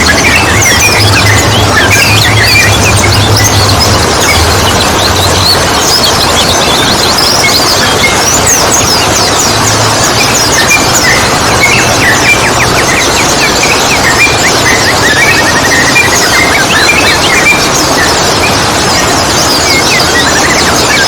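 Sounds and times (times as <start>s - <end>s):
rapid repeated bird notes: 0.0s - 21.0s
songbirds chirping and twittering: 0.0s - 21.0s
steady rushing noise: 0.0s - 21.0s.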